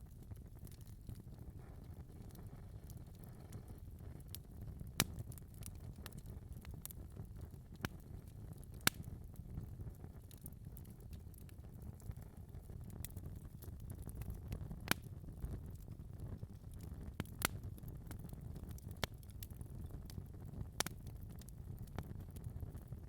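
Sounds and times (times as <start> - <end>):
fire crackling: 0.0 - 23.0
low rumble of fire: 0.0 - 23.0
sharp fire pops: 4.6 - 7.0, 7.8 - 9.1, 16.7 - 21.4.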